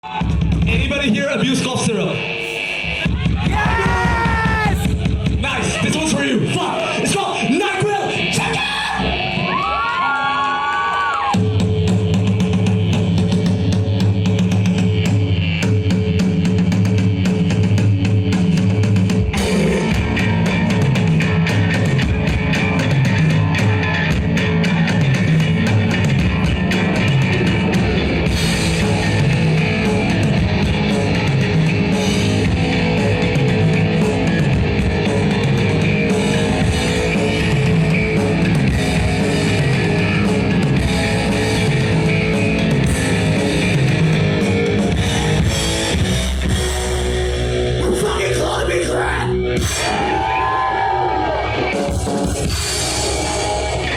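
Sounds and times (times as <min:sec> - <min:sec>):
bass guitar: 0:00.0 - 0:53.9
distorted electric guitars: 0:00.0 - 0:53.9
fast drum kit: 0:00.0 - 0:53.9.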